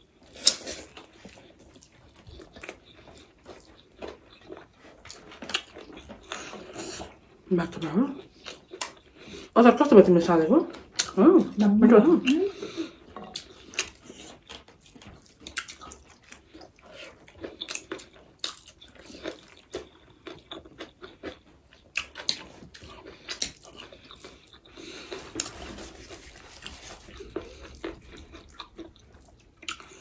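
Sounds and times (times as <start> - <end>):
people chewing food: 0.0 - 30.0.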